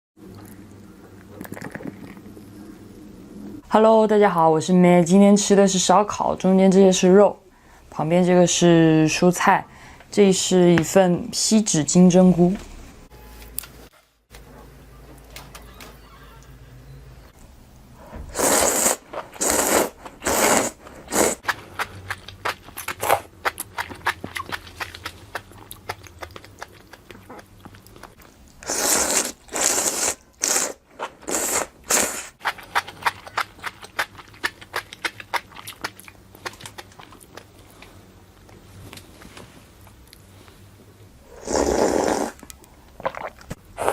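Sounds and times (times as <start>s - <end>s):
rapid crackly chewing: 19.1s - 39.2s.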